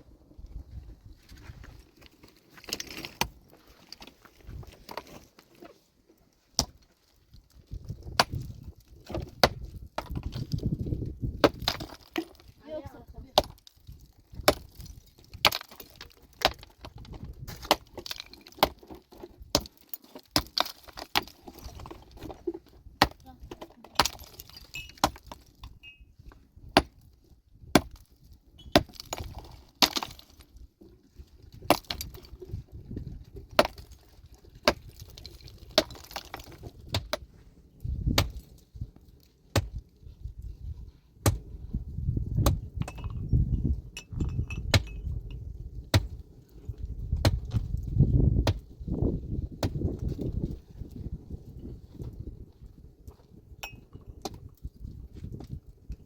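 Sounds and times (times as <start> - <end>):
pickaxes striking rock: 2.6 - 3.4, 6.5 - 26.0, 26.6 - 30.6, 31.5 - 38.6, 39.5 - 39.8, 41.2 - 41.5, 42.2 - 43.4, 44.0 - 46.2, 47.1 - 50.5.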